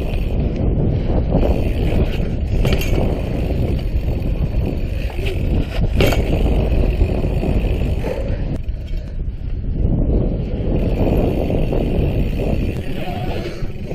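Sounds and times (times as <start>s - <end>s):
bicycle tyre rumble: 0.0s - 13.9s
wind buffeting microphone: 0.0s - 13.9s
sharp knocks from bike: 2.1s - 3.8s, 5.0s - 6.8s.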